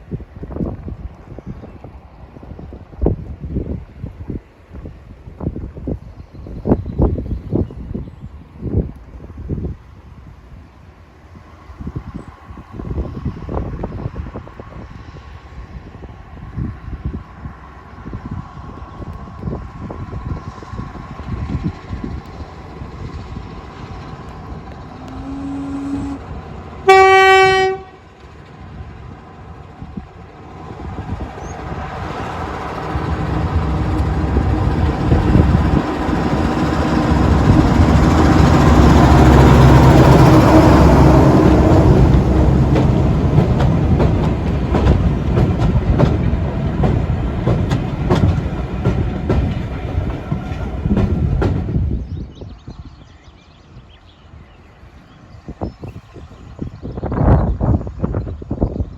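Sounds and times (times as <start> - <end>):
diesel locomotive running past: 0.0 - 58.9
locomotive horn blast: 25.0 - 28.1
wheels clicking over rail joints: 41.8 - 51.7.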